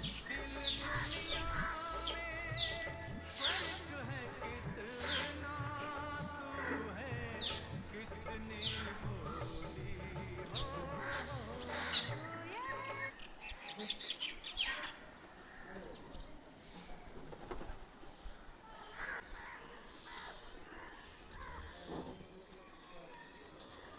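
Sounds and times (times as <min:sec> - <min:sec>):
music with steady tones: 0:00.0 - 0:13.1
birds chirping: 0:00.0 - 0:15.2.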